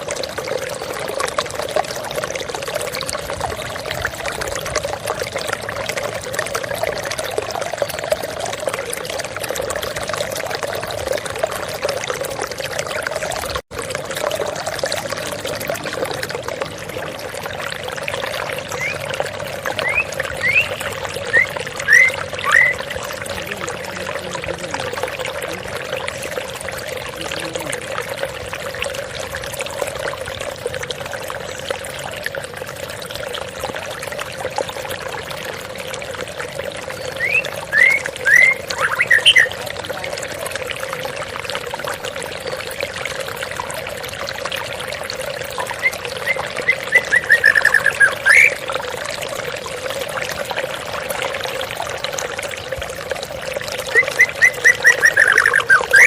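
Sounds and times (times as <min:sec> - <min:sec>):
small waterfall rushing: 0:13.4 - 0:31.6, 0:44.2 - 0:56.0
bird whistled song: 0:18.7 - 0:19.1, 0:19.8 - 0:22.9, 0:37.2 - 0:39.5, 0:45.8 - 0:48.6, 0:53.9 - 0:56.0.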